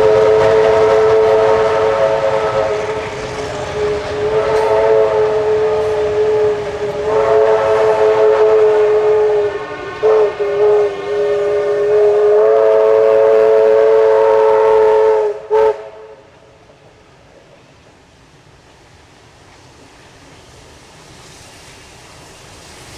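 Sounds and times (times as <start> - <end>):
locomotive horn blasts: 0.0 - 16.3.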